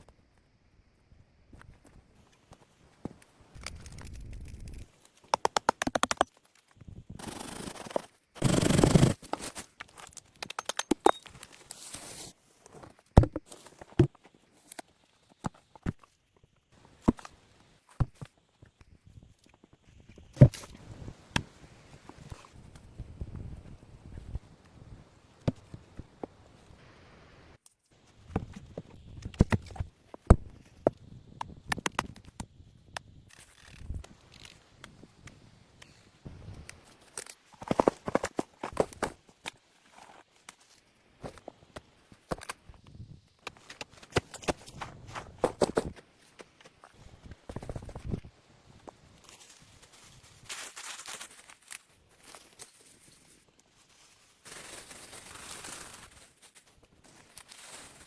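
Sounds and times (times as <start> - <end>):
dry leaves rustling and crunching: 49.2 - 58.0.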